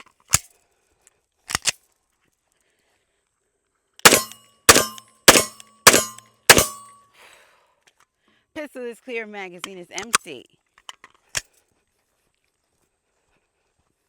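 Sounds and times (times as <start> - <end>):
pistol shots: 4.0 - 6.9
quieter sharp cracks: 4.0 - 7.0.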